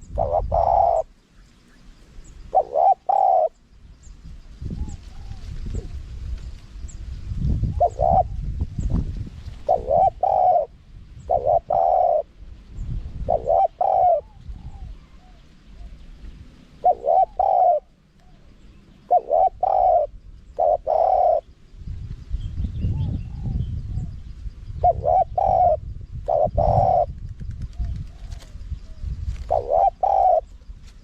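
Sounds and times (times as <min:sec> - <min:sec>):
dove cooing: 0:00.0 - 0:01.2, 0:02.5 - 0:03.6, 0:04.7 - 0:06.0, 0:07.6 - 0:08.5, 0:09.6 - 0:12.4, 0:13.2 - 0:16.0, 0:16.8 - 0:21.5, 0:24.8 - 0:30.6.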